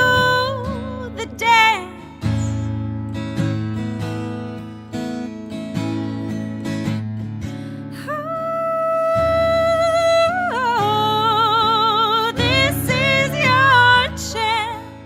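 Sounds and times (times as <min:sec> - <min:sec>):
woman singing wordless notes: 0:00.0 - 0:02.4, 0:08.0 - 0:15.0
acoustic guitar strumming: 0:00.0 - 0:15.0.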